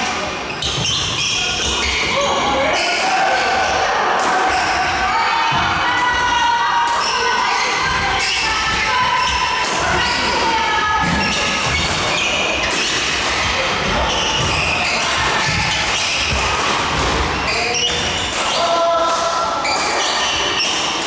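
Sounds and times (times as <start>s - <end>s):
shoes squeaking on court floor: 0.3s - 3.0s, 11.0s - 16.4s.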